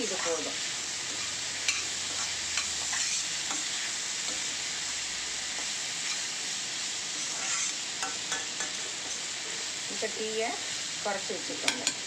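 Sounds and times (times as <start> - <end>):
food sizzling in oil: 0.0 - 12.0
metal ladle stirring and scraping: 7.2 - 9.2.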